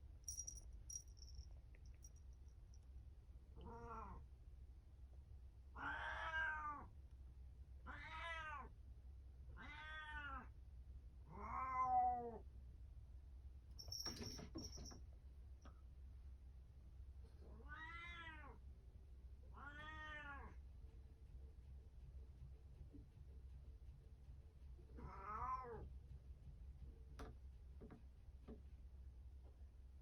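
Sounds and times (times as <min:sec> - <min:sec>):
high jingling rattle: 0:00.3 - 0:02.7, 0:13.8 - 0:15.0
cat meowing: 0:03.6 - 0:04.2, 0:05.8 - 0:06.9, 0:07.9 - 0:08.7, 0:09.6 - 0:10.5, 0:11.3 - 0:12.2, 0:17.6 - 0:18.6, 0:19.6 - 0:20.6, 0:25.0 - 0:25.8.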